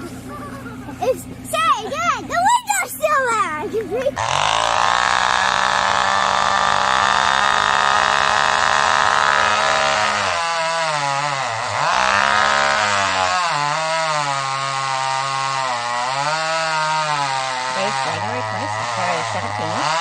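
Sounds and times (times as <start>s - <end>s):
chainsaw cutting wood: 4.1s - 20.0s.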